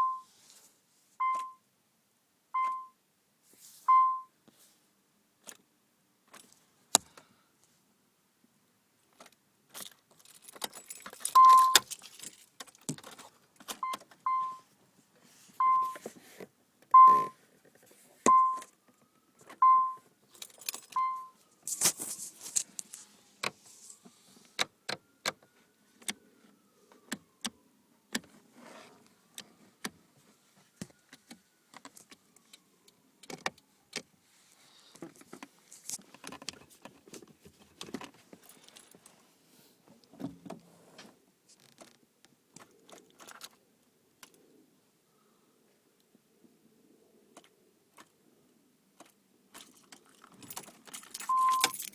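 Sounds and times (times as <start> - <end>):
short electronic beep: 0.0 - 0.3, 2.6 - 3.0, 3.9 - 4.3, 11.4 - 11.8, 13.8 - 14.6, 15.6 - 16.0, 17.0 - 17.4, 18.3 - 18.6, 21.0 - 21.4, 51.3 - 51.7
keys jangling: 9.7 - 13.2, 20.3 - 21.0, 49.5 - 51.9.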